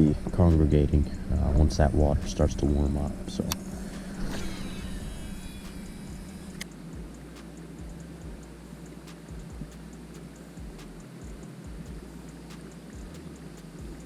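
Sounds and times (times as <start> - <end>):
low steady hum: 0.0 - 14.0
fishing reel ticking: 2.3 - 14.0
sharp reel clicks: 3.4 - 7.8.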